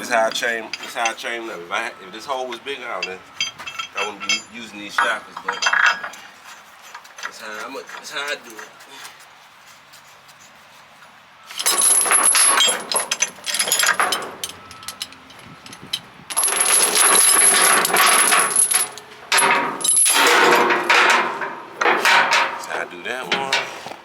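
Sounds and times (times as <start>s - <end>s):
steel chain rattling: 3.0s - 6.1s, 11.5s - 22.6s.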